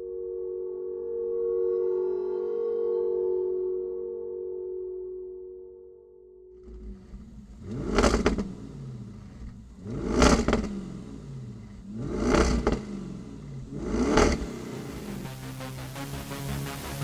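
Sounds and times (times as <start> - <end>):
car engine revving: 6.5 - 17.0.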